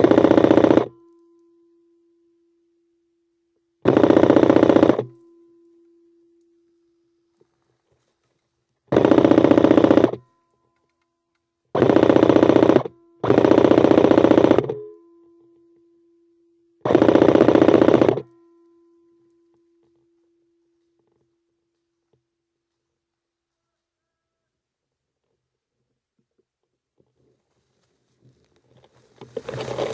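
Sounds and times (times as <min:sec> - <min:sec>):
airsoft rifle full-auto clicking: 0:00.0 - 0:01.0, 0:03.8 - 0:05.2, 0:08.9 - 0:10.2, 0:11.8 - 0:14.8, 0:16.9 - 0:18.3.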